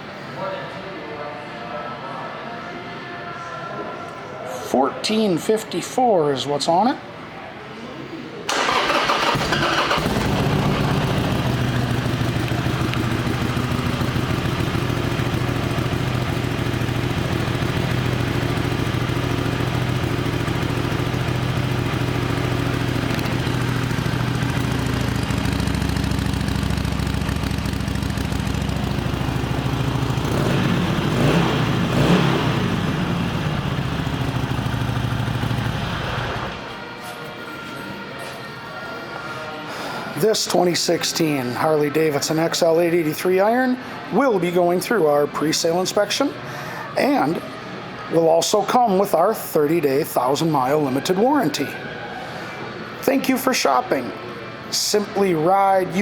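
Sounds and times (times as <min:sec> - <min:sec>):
electric starter: 0:08.5 - 0:14.6
motorcycle engine revving: 0:08.6 - 0:36.6
motorcycle engine idling: 0:08.6 - 0:36.7.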